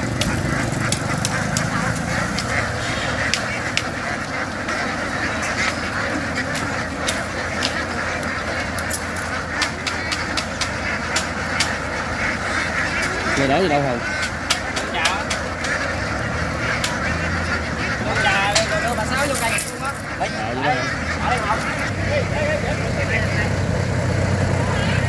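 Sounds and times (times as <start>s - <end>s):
ducks quacking: 0.0s - 25.0s
sharp clicks and taps: 14.2s - 17.2s.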